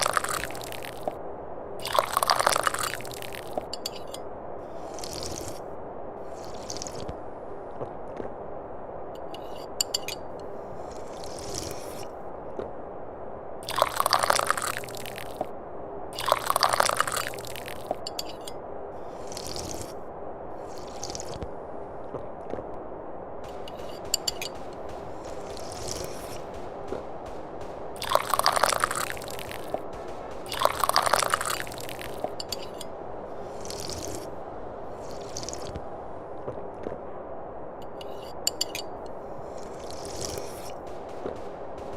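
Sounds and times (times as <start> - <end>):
person sipping tea: 0.0 - 1.1, 1.8 - 4.0, 4.6 - 7.2, 10.8 - 12.1, 13.7 - 15.4, 16.2 - 18.3, 19.0 - 20.0, 20.6 - 21.5, 28.0 - 29.8, 30.4 - 35.8, 39.4 - 40.8
faint background noise: 0.0 - 41.9
low background noise: 0.0 - 41.9
person slurping tea: 4.7 - 5.6, 6.3 - 7.1, 10.9 - 12.0, 16.2 - 17.7, 19.1 - 20.0, 20.6 - 21.4, 33.4 - 35.8, 39.5 - 40.7.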